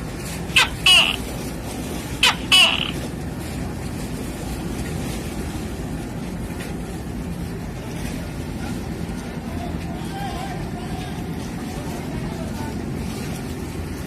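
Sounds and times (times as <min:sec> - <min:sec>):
engine rumble: 0:00.0 - 0:14.0
short falling calls: 0:00.5 - 0:01.3, 0:02.2 - 0:03.1.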